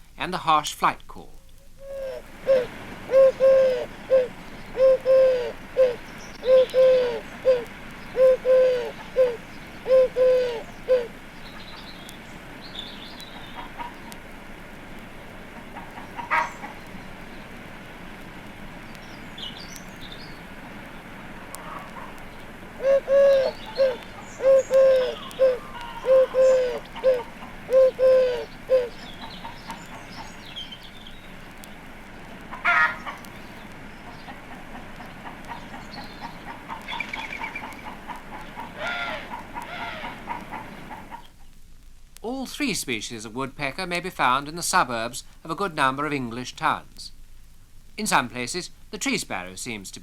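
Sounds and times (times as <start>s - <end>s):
robin singing: 0.1s - 14.2s, 18.8s - 32.3s, 35.1s - 40.2s
harsh bird calls: 1.4s - 14.3s, 15.5s - 17.6s, 18.7s - 41.4s
dove cooing: 1.7s - 14.2s, 15.5s - 17.3s, 21.0s - 31.0s, 32.4s - 41.3s
hens clucking: 1.9s - 12.0s, 12.9s - 14.3s, 15.4s - 17.2s, 21.4s - 30.7s, 32.4s - 33.4s, 34.0s - 41.4s.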